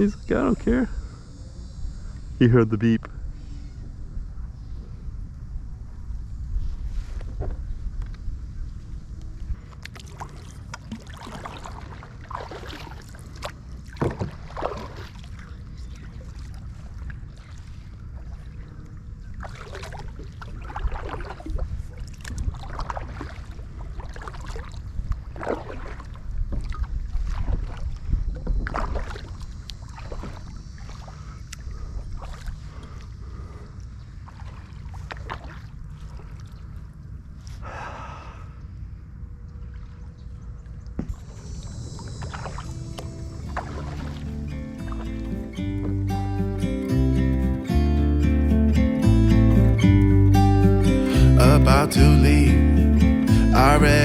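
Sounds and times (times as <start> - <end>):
paddle splashing in water: 9.6 - 33.1, 34.1 - 37.6, 42.0 - 46.0.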